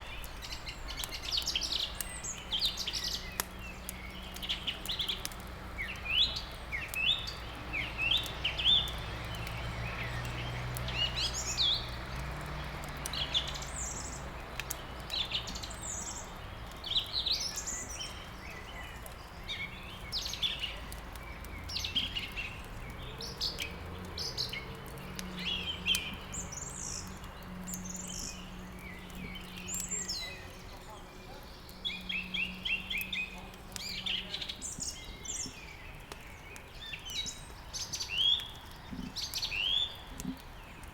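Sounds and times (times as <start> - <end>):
songbirds chirping and trilling: 0.0 - 40.9
wood fire crackling: 0.0 - 40.9.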